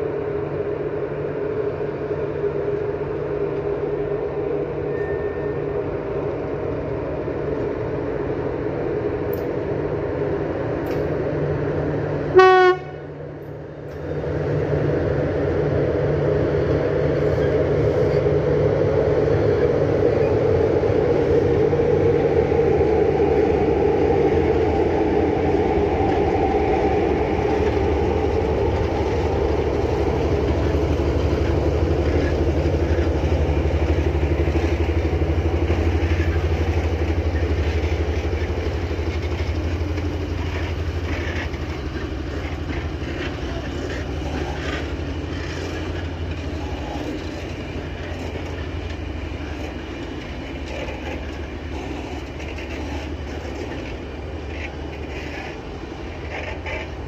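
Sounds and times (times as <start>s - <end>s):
train humming past: 0.0s - 57.0s
wheels clattering over rail joints: 27.2s - 57.0s.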